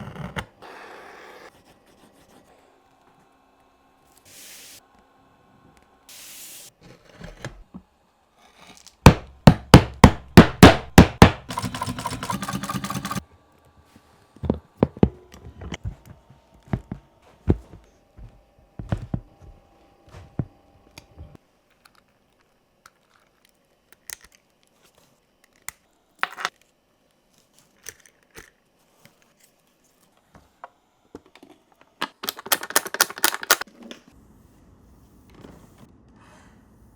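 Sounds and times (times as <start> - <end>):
mallet knocking on punch: 9.1 - 11.5.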